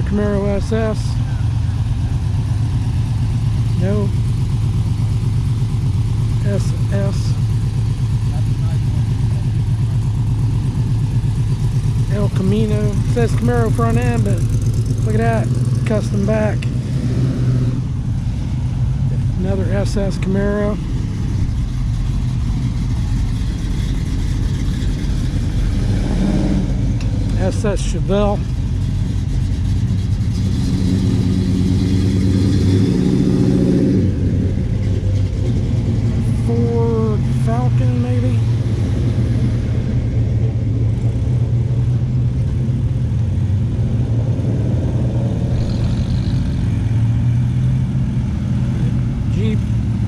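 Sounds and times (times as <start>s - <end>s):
car engines rumbling: 0.0s - 50.0s
cars driving past: 0.0s - 50.0s
car engine driving past: 38.2s - 50.0s.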